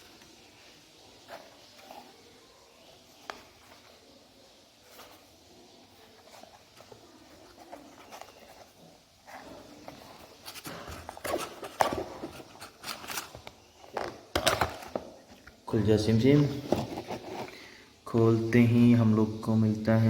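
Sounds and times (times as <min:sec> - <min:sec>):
packaging rustling: 0:04.8 - 0:15.6, 0:16.3 - 0:17.7
packaging scraping and clicking: 0:05.9 - 0:15.5, 0:16.5 - 0:17.7.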